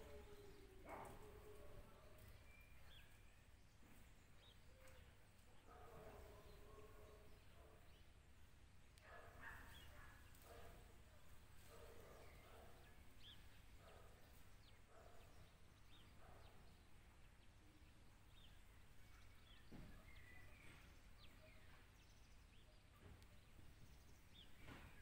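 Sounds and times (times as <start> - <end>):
bird chirps: 0.0 - 5.1, 11.6 - 25.0.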